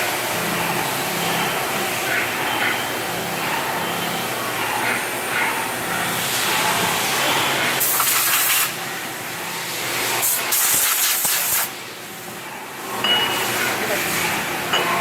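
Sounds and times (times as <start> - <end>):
workshop machinery running: 0.0 - 15.0
loud hissing bursts: 10.2 - 11.8.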